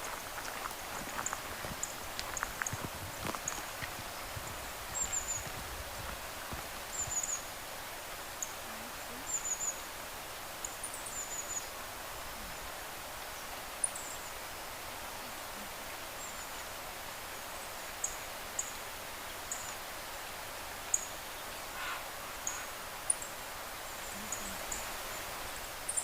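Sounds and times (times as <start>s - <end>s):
small birds high-pitched calls: 0.0s - 7.6s, 20.8s - 25.3s
outdoor background hiss: 0.0s - 26.0s.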